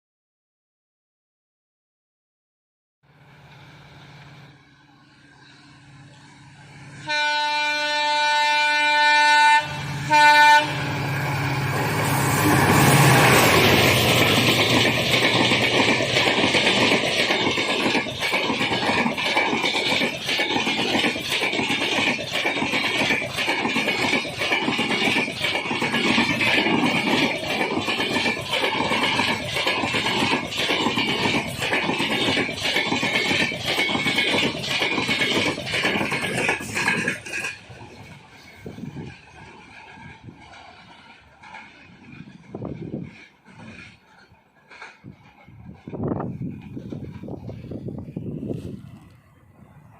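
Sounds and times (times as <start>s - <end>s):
passing train rumble: 3.0s - 49.9s
train horn blasts: 7.0s - 11.1s
wheel clatter over rails: 11.7s - 49.1s.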